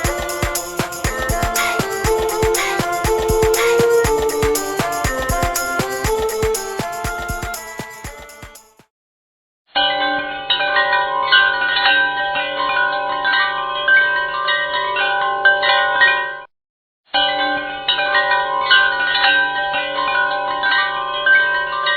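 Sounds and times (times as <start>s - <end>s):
wind chimes ringing: 0.0s - 6.9s.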